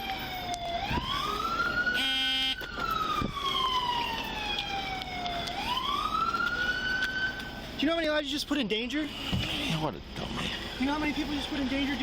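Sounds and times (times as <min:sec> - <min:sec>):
emergency vehicle siren wailing: 0:00.0 - 0:07.8.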